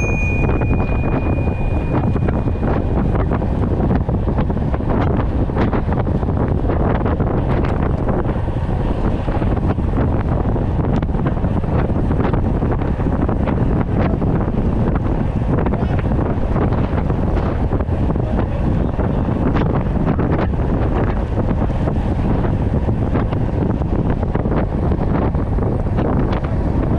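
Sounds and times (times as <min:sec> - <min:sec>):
high ringing tone: 0:00.0 - 0:03.8
wind buffeting microphone: 0:00.0 - 0:26.9.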